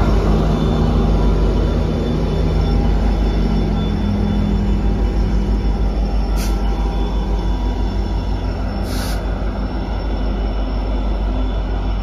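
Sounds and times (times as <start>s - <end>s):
diesel engine hum: 0.0s - 12.0s
train passing by: 0.0s - 12.0s
short air hisses: 6.4s - 6.6s, 8.8s - 9.3s.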